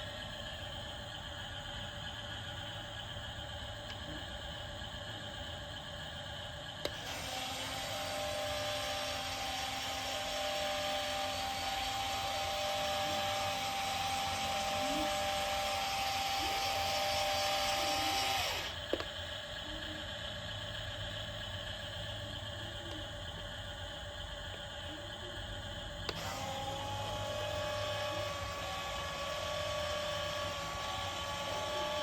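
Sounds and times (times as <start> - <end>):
small electric motor whirring: 6.8 - 19.2, 26.0 - 32.0
click: 18.9 - 19.1, 26.0 - 26.2.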